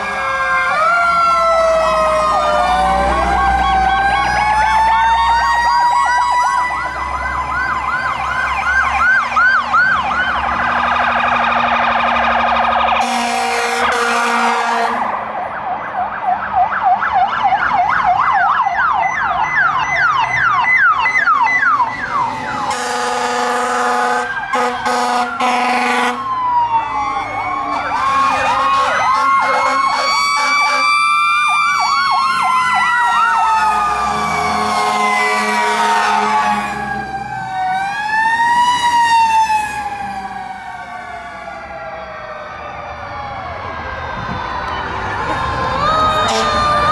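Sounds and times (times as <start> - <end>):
electronic siren yelping: 0.0 - 14.8, 24.3 - 46.9
wailing sirens: 0.0 - 46.9
air horn blasts: 13.0 - 15.2, 22.7 - 26.3, 27.8 - 30.8, 34.6 - 36.8, 46.2 - 46.7.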